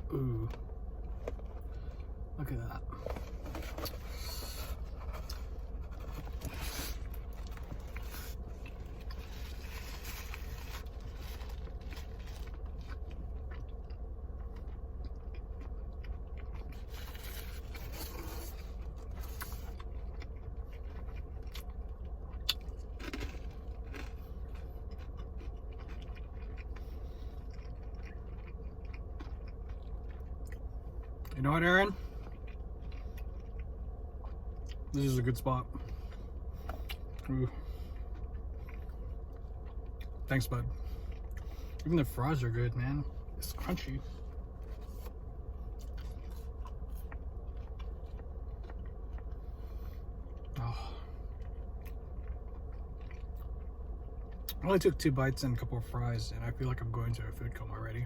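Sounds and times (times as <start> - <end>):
chewing and crunching food: 0.0 - 58.0
low hum: 0.0 - 58.0
food scraping and rustling: 3.0 - 13.0, 16.8 - 19.8.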